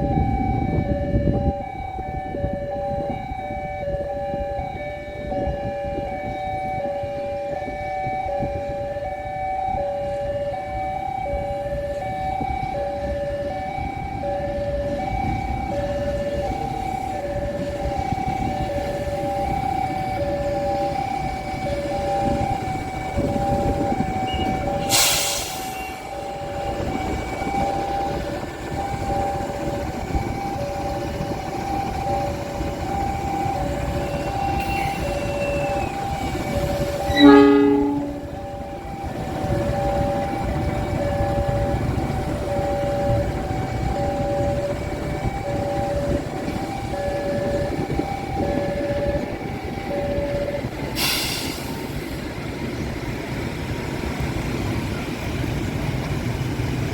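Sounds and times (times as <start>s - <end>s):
two-tone warning signal: 0.0s - 52.6s
train rumbling: 0.0s - 56.9s
loud horn blast: 37.0s - 38.5s.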